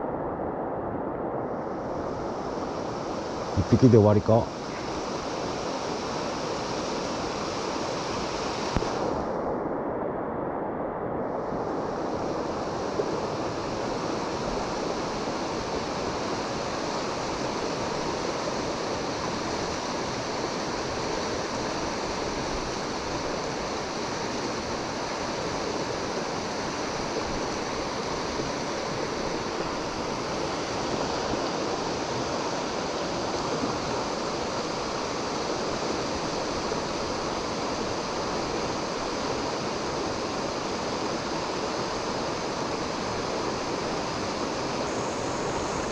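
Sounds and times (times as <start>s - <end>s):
fast-flowing river rushing: 12.4s - 45.9s.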